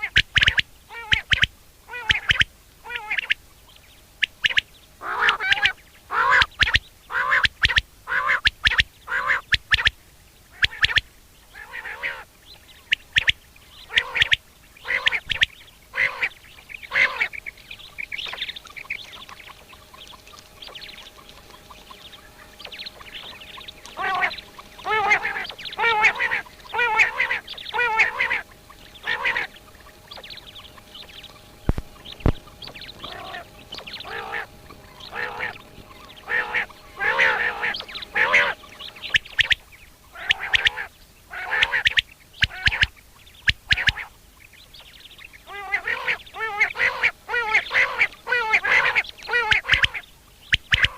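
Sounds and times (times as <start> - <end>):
quail calling: 0.0 - 50.9.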